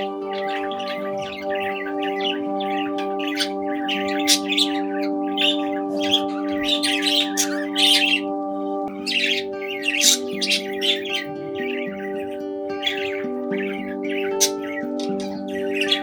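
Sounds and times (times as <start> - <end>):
background music of held chords: 0.0 - 16.0
budgies chirping and chattering: 0.0 - 16.0.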